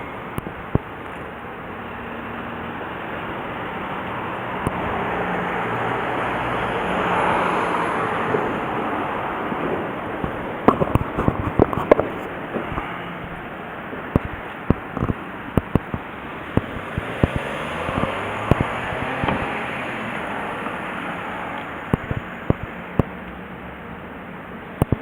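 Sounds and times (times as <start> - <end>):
vehicle passing: 1.3 - 23.8
sharp clicks and knocks: 10.2 - 13.4, 14.0 - 19.6.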